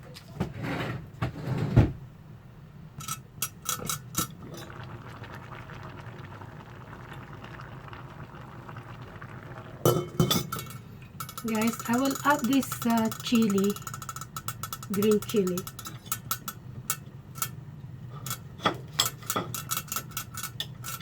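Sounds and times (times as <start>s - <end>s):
pot bubbling: 3.4s - 21.0s
pot and utensil clatter: 9.9s - 17.6s, 18.2s - 21.0s.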